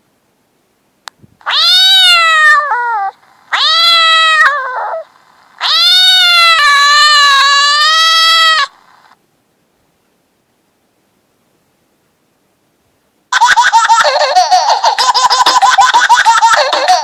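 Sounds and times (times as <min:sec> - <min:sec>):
cat meow ringtone: 0:01.5 - 0:08.7.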